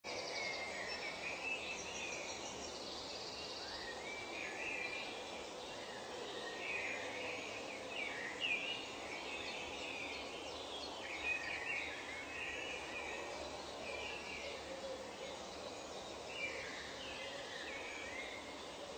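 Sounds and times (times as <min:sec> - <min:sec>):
background hiss: 0:00.1 - 0:18.9.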